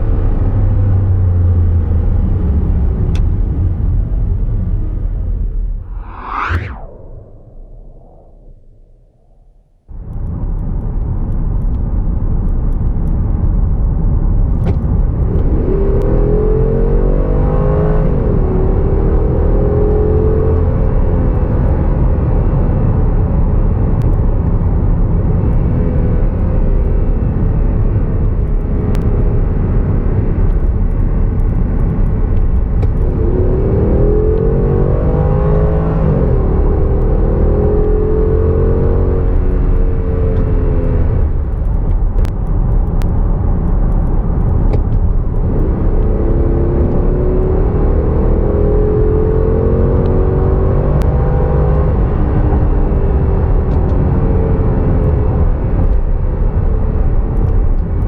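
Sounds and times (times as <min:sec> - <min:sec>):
road noise: 0:00.0 - 0:09.3.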